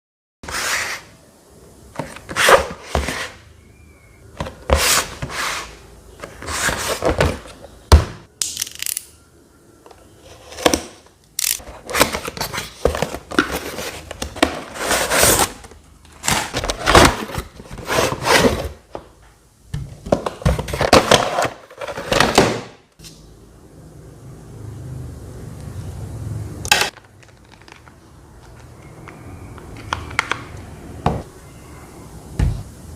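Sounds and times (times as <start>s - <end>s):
packaging rustling and scraping: 2.0s - 3.4s, 4.4s - 7.8s, 10.1s - 19.1s, 20.0s - 22.6s.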